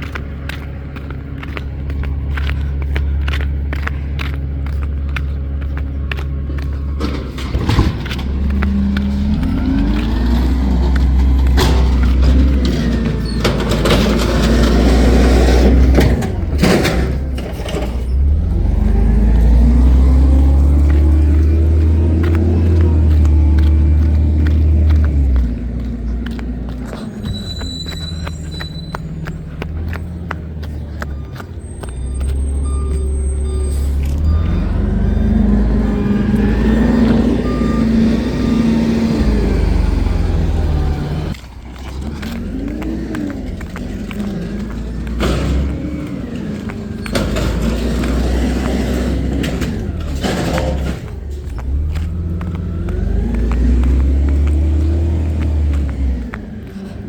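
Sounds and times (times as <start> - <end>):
sharp knocks and clatters: 0.0 - 20.0, 41.1 - 57.0
vehicle engine rumbling: 0.0 - 57.0.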